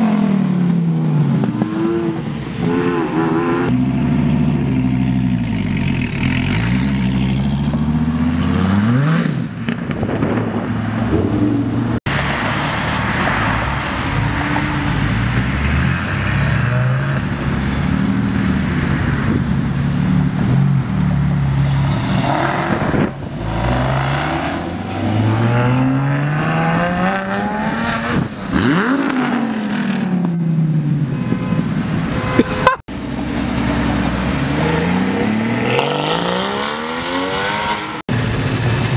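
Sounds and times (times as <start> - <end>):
car engines revving and accelerating: 0.0 - 38.9.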